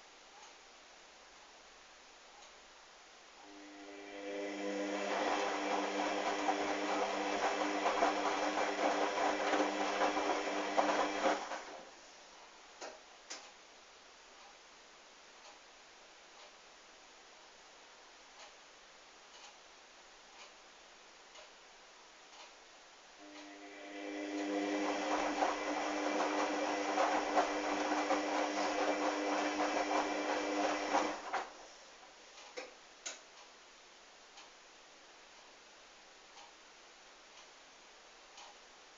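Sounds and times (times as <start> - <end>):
washing machine motor hum: 3.5 - 12.0, 23.2 - 31.8
faint clicks: 19.3 - 19.6, 22.3 - 22.6, 38.3 - 38.6
sudsy water churning: 24.8 - 31.4
wet laundry splashing and tumbling: 24.9 - 31.3.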